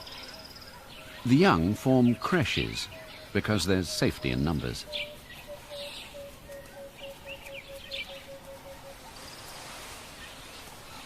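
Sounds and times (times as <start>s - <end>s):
bird chirps: 0.0s - 11.0s
faint high hiss: 7.7s - 11.0s.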